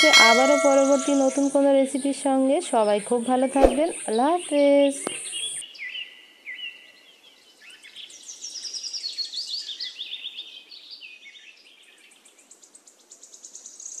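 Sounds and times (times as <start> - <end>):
birds chirping: 0.0 - 6.0.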